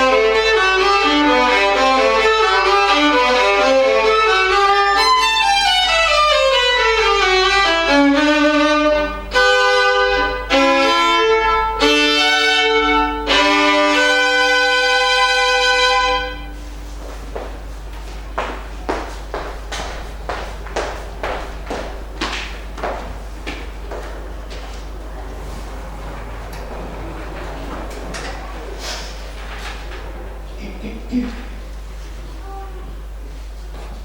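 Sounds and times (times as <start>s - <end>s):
solo violin: 0.0s - 16.4s
piano accompaniment: 0.0s - 30.5s.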